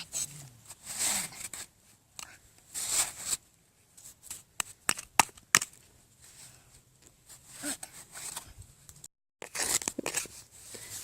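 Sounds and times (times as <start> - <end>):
shovel scraping sand: 2.7 - 3.4, 9.4 - 11.0.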